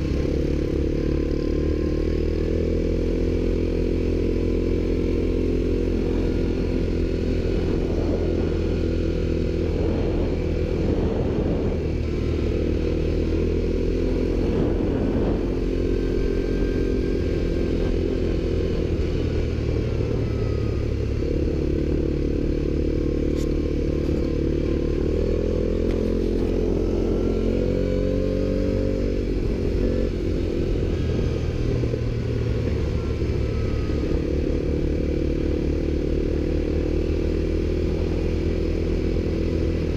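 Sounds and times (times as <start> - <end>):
quad bike engines revving: 0.0 - 39.9.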